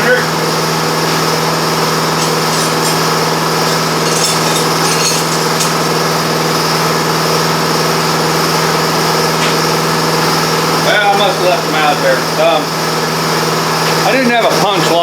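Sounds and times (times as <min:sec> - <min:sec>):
faint light clinks: 0:02.1 - 0:06.2.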